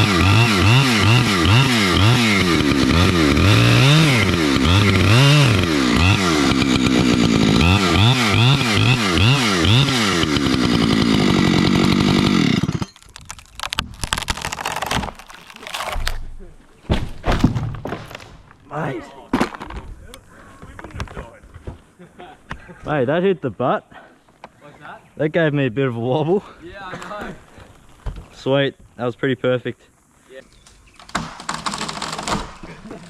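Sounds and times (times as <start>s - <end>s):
chainsaw cutting wood: 0.0s - 16.2s, 30.9s - 33.0s.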